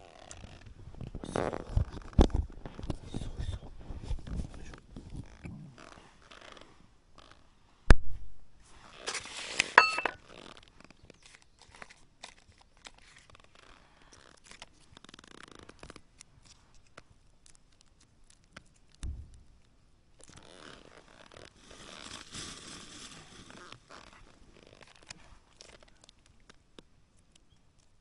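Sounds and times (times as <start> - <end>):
soft thump: 19.0 - 19.4.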